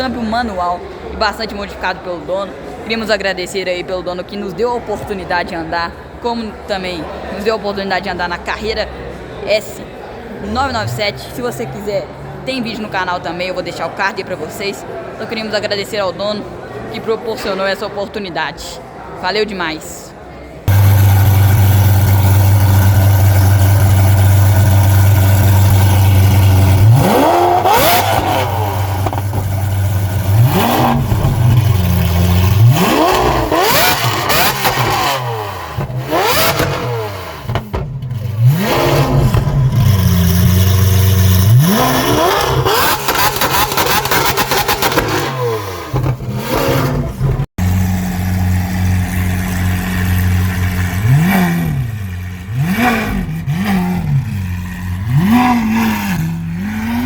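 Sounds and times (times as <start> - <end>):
sports car engine revving: 20.7 - 57.0.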